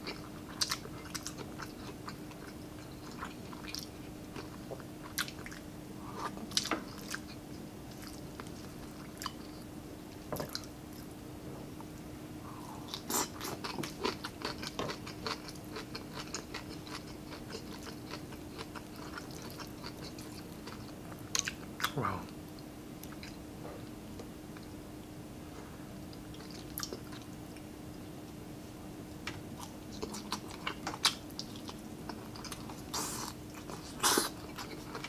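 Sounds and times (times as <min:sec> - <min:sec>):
faint steady hum: 0:00.0 - 0:35.0
chewing and biting food: 0:12.9 - 0:22.0, 0:29.6 - 0:35.0.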